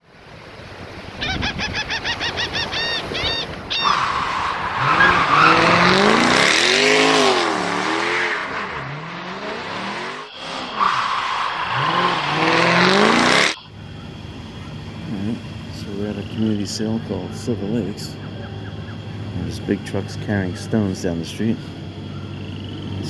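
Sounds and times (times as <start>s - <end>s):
vehicle engine running: 11.6s - 23.0s.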